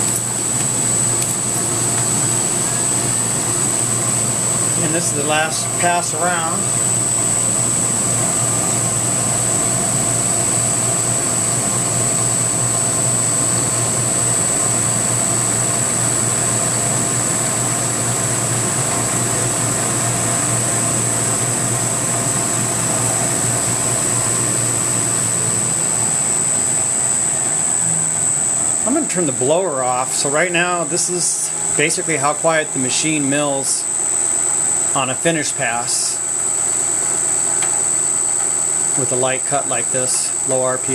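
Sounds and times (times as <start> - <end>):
high-pitched whine: 0.0 - 40.9
air blower rushing: 21.6 - 34.0.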